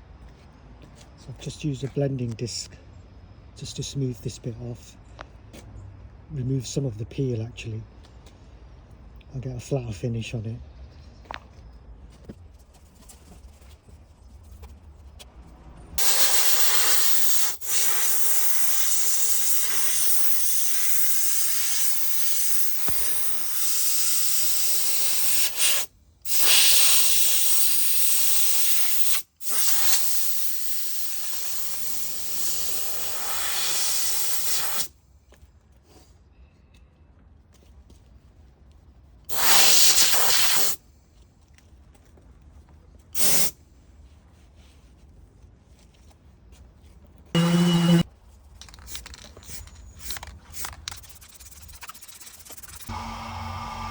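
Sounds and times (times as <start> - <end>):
paint spray gun hissing: 16.0 - 34.9, 43.2 - 43.5.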